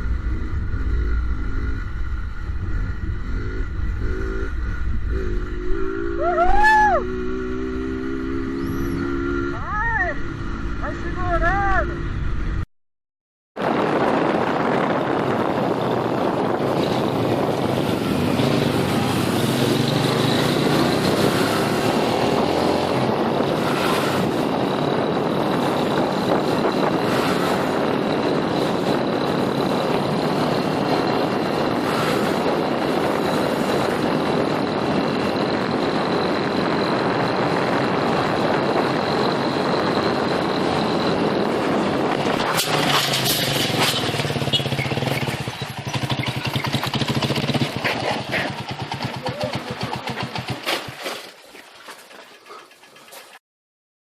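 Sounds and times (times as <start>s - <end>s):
wind noise: 0.0s - 12.6s, 13.6s - 49.3s
motorcycle engine running: 13.6s - 50.7s.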